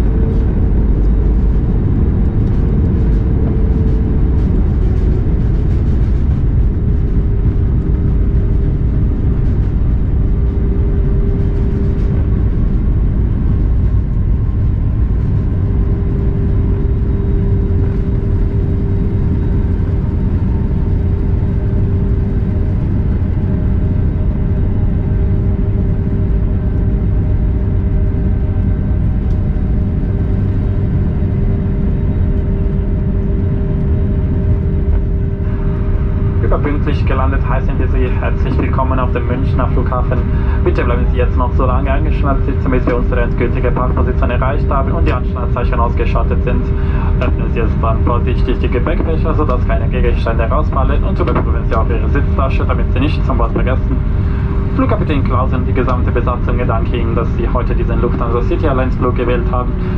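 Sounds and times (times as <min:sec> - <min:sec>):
airplane cabin rumble: 0:00.0 - 0:59.9
jet engines humming: 0:00.0 - 0:59.9
steady mid-pitched tone: 0:32.9 - 0:59.9.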